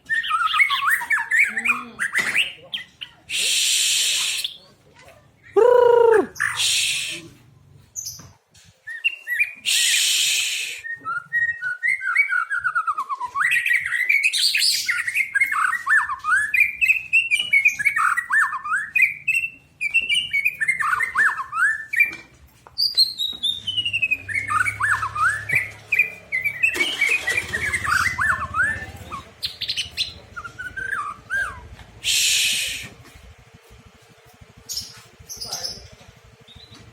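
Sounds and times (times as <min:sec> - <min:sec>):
bird singing whistled song: 0:00.0 - 0:04.6, 0:08.8 - 0:22.2, 0:22.8 - 0:33.2
short bursts of hiss: 0:03.4 - 0:04.6, 0:32.0 - 0:33.0.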